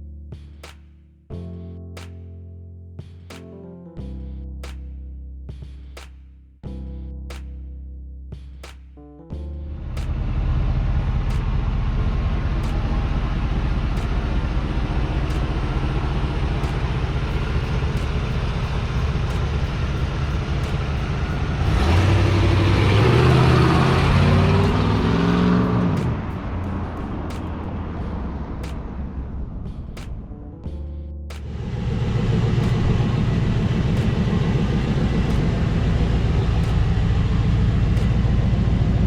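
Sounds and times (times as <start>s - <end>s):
car engine starting and idling: 9.8s - 30.3s, 31.4s - 39.0s
engine revving: 10.0s - 29.5s.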